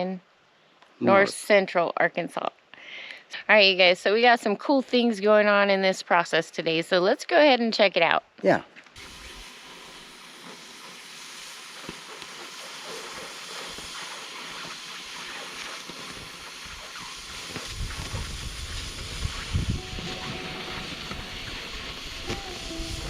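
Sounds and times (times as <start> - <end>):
steady hissing noise: 8.5 - 23.0.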